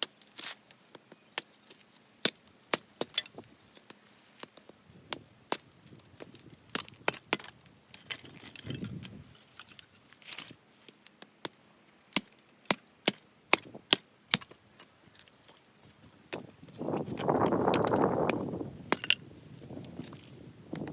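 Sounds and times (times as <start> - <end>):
hatchet chopping firewood: 2.2 - 8.6, 11.4 - 15.3, 16.3 - 19.2.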